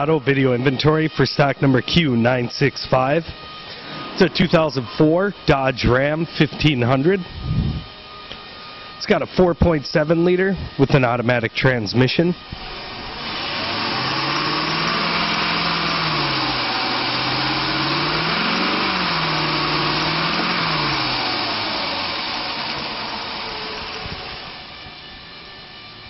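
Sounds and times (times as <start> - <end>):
truck engine revving: 12.4 - 24.9.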